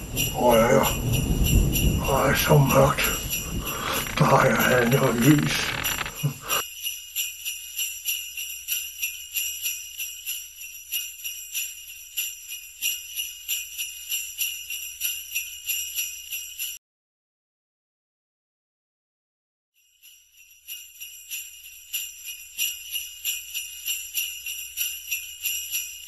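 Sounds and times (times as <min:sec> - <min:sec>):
sleigh bells jingling: 0:00.0 - 0:16.8, 0:19.8 - 0:26.0
low voice-like sound: 0:00.4 - 0:01.0, 0:02.0 - 0:06.6.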